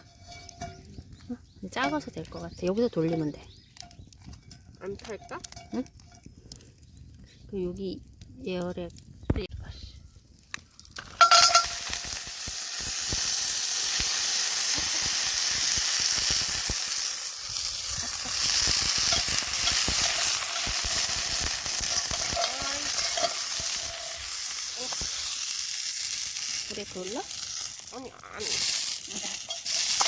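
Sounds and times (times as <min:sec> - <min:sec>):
fire crackling: 0:00.0 - 0:30.0
food sizzling on hot pan: 0:10.7 - 0:30.0.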